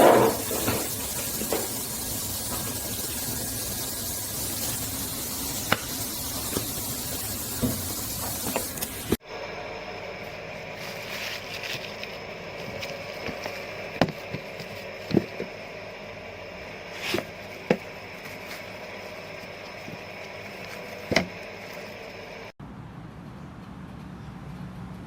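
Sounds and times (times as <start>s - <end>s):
kettle hissing: 0.0s - 9.4s.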